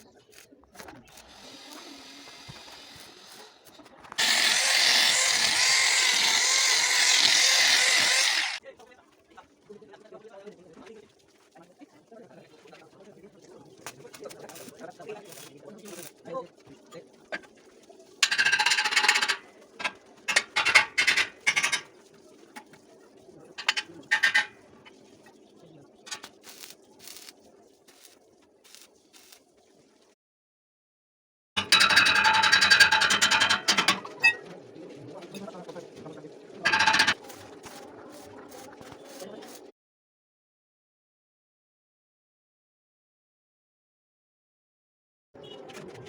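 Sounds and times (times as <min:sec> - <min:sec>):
welding arc hissing: 0:00.0 - 0:08.6, 0:13.8 - 0:16.5, 0:26.1 - 0:29.5, 0:36.8 - 0:39.7.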